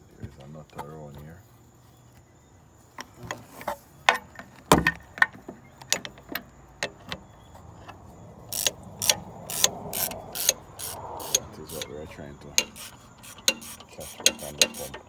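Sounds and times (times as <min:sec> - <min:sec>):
hand tools knocking on metal: 0:08.5 - 0:15.0
short rasping bursts: 0:08.5 - 0:15.0.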